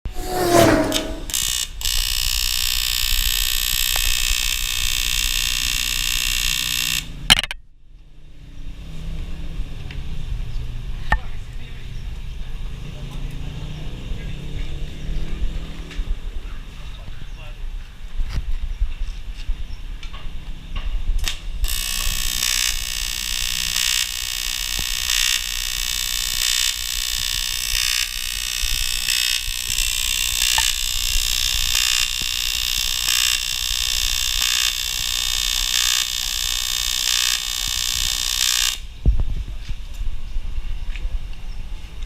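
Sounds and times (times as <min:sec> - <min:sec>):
low hum: 0:00.0 - 0:01.4.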